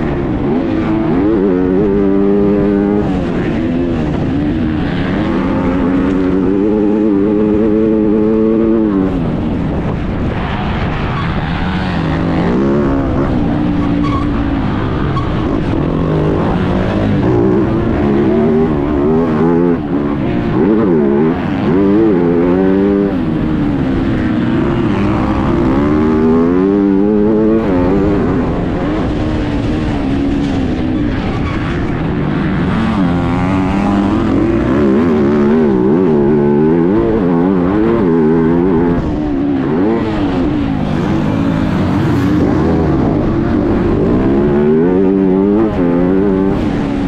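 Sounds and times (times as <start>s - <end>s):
motocross bike engine revving: 0.0s - 47.0s
rush of noise: 0.0s - 47.0s.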